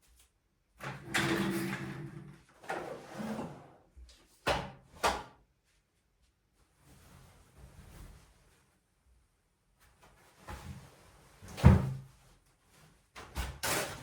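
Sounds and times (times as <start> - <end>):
objects scraping as they slide: 1.3 - 3.8.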